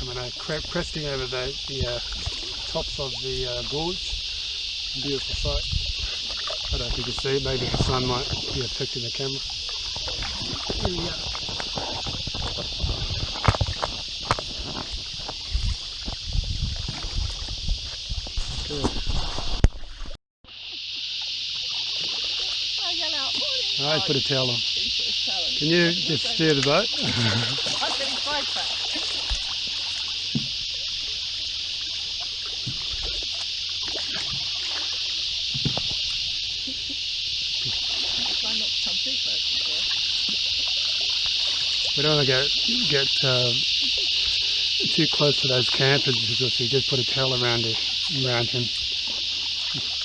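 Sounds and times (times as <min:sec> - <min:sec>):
steady high-pitched hiss: 0:00.0 - 0:19.6, 0:20.5 - 0:50.0
paddle strokes in water: 0:00.0 - 0:24.1, 0:24.7 - 0:50.0
high insect buzz: 0:00.0 - 0:50.0
paddle knocking against hull: 0:05.9 - 0:08.8, 0:09.4 - 0:20.1, 0:26.6 - 0:36.4.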